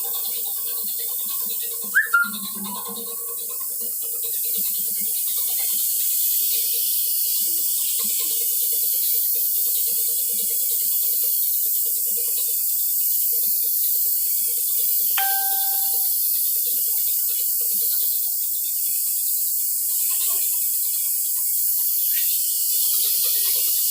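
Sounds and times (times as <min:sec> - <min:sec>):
short electronic beep: 0:15.2 - 0:16.1.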